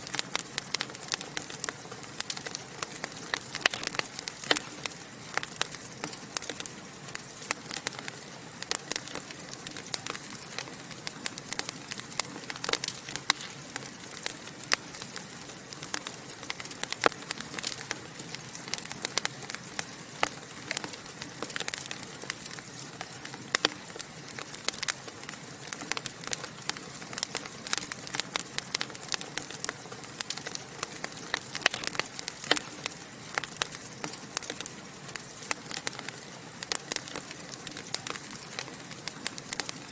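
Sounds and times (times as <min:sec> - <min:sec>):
fire hiss: 0:00.0 - 0:39.9
wood fire crackling and popping: 0:00.0 - 0:39.9.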